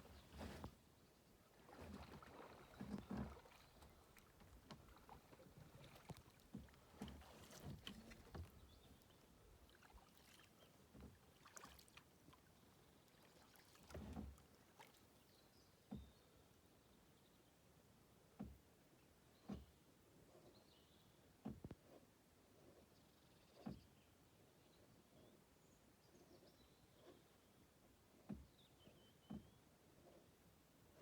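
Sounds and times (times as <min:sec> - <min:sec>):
paddle splashing water: 0:00.0 - 0:15.2.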